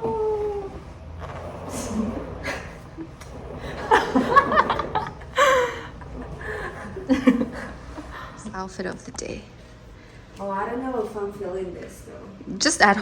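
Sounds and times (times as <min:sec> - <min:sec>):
women laughing: 0:01.7 - 0:08.6
women speaking: 0:01.7 - 0:09.6, 0:10.4 - 0:13.0.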